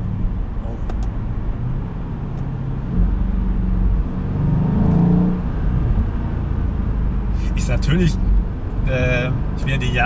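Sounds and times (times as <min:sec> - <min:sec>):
car engine rising in pitch: 0:02.0 - 0:08.5.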